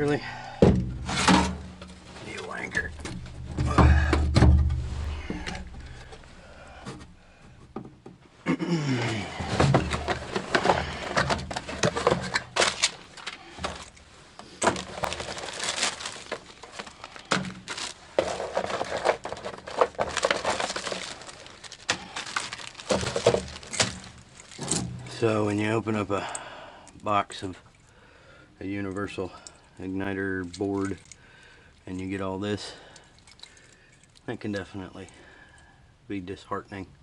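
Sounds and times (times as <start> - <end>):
loose parts clicking and clattering: 9.0 - 27.9, 28.7 - 31.2
packaging crinkling: 9.5 - 24.8.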